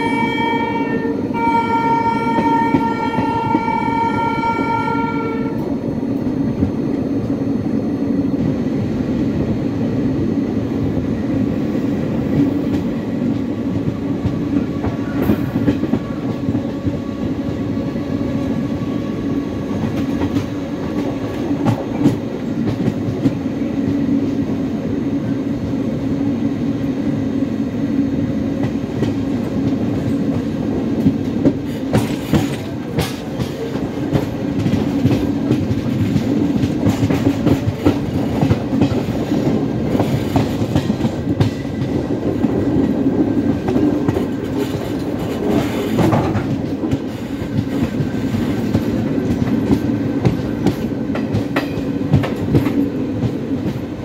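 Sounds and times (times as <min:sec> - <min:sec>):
train horn: 0:00.0 - 0:05.8
train wheels rumbling on track: 0:00.0 - 0:54.0.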